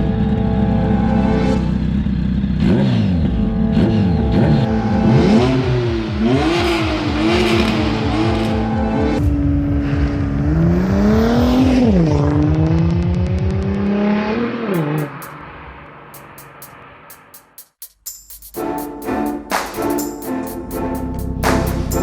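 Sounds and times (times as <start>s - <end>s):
car engine revving: 0.0s - 17.3s
background music: 3.3s - 13.2s, 14.8s - 22.0s.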